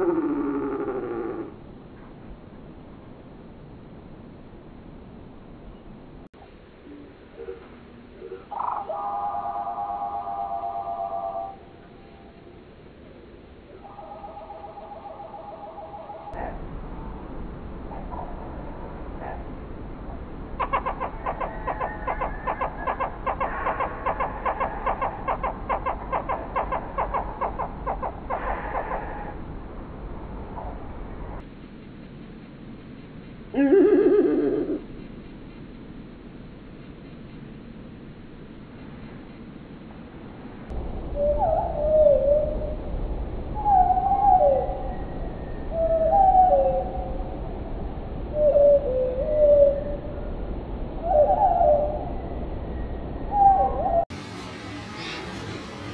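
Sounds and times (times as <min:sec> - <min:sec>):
slowed down birdsong: 0:06.8 - 0:16.4, 0:20.1 - 0:29.6, 0:41.0 - 0:55.9.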